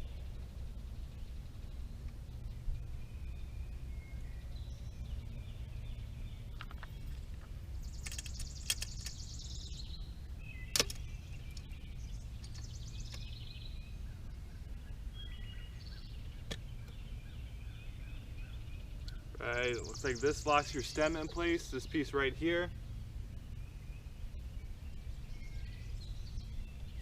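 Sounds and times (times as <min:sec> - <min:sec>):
low background rumble: 0:00.0 - 0:27.0
clicks and knocks of parts: 0:08.0 - 0:09.3, 0:10.7 - 0:11.7.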